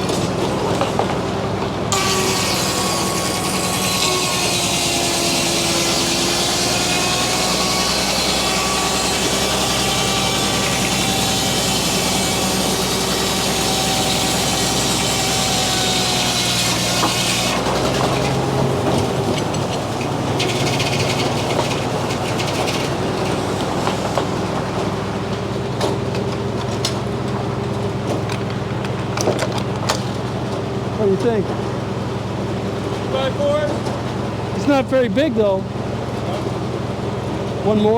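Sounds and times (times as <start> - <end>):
saw blade cutting log: 1.9 - 25.2.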